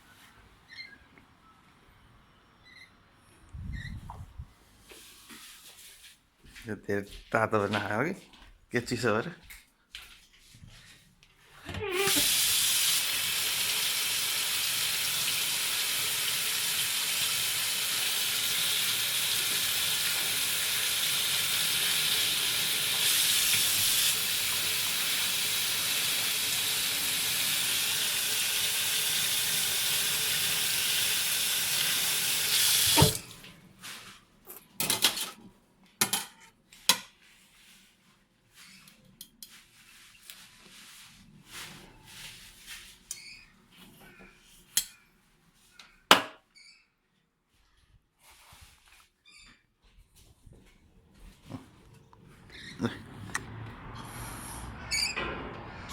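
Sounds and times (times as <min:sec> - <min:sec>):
water tap running: 0:12.0 - 0:33.4.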